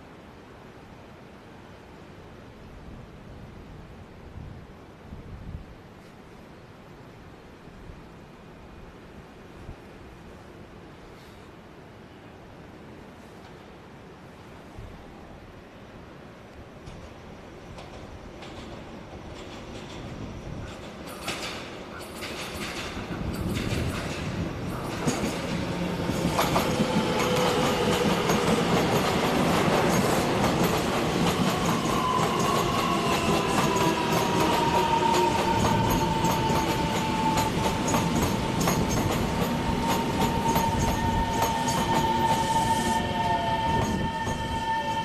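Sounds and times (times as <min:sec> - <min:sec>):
train rumbling: 0:16.8 - 0:45.0
wheels clicking over rail joints: 0:17.7 - 0:42.4.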